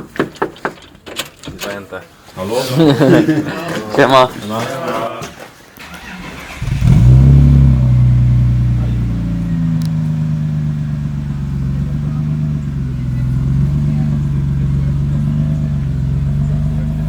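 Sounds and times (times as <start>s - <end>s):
car engine cranking and idling: 5.8s - 17.0s.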